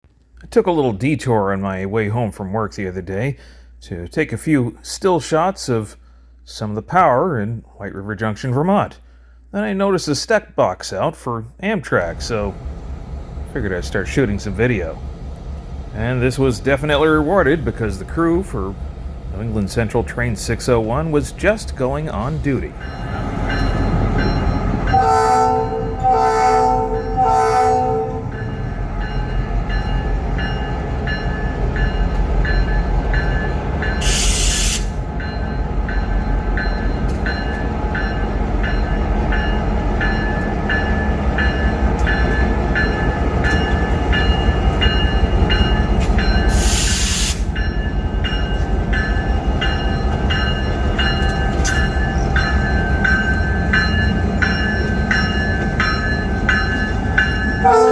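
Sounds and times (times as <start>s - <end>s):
diesel locomotive rumble: 11.9s - 57.9s
locomotive horn blasts: 24.6s - 28.4s, 57.6s - 57.9s
air hiss bursts: 34.0s - 35.0s, 46.5s - 47.6s.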